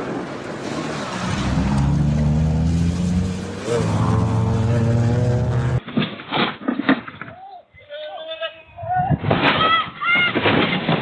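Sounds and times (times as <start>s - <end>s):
vehicle engine revving: 0.7s - 5.8s.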